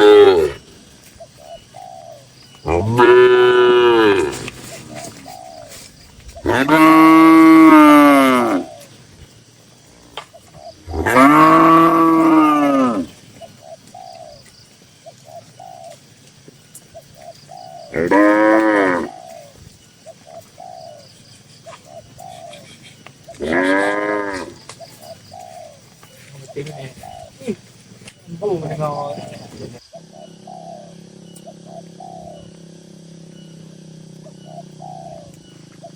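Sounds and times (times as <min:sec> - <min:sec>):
cattle mooing: 0:02.7 - 0:04.5, 0:06.4 - 0:08.7, 0:10.8 - 0:13.2, 0:17.9 - 0:19.1, 0:23.3 - 0:24.7.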